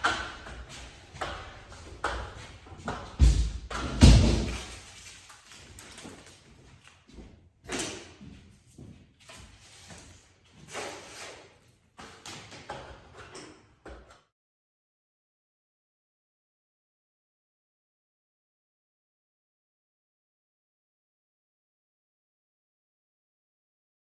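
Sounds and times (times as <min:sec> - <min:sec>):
wooden boards knocking: 0:02.9 - 0:04.7
wooden boards thudding: 0:02.9 - 0:04.8.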